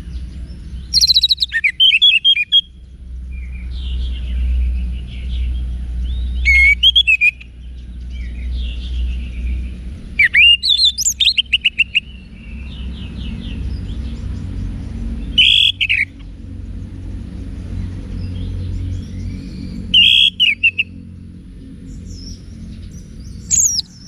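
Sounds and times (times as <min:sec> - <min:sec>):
steady low hum: 0:00.0 - 0:24.0
thrush singing: 0:22.7 - 0:24.0.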